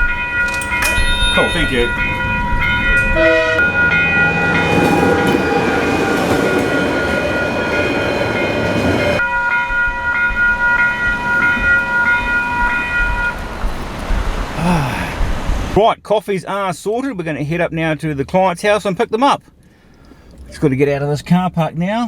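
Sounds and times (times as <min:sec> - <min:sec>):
crossing warning bells ringing: 0:00.0 - 0:14.3
train rushing and rumbling: 0:00.0 - 0:15.8.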